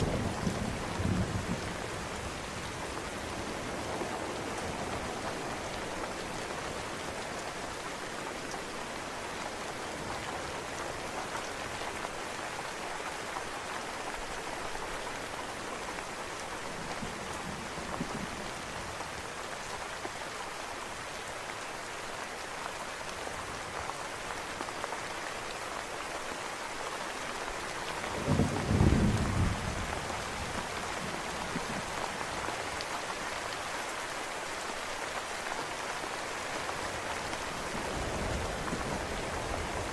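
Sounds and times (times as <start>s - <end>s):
steady rain: 0.0s - 39.9s
distant thunder rumble: 28.1s - 31.9s
thunderclap with deep rumble: 28.2s - 30.6s.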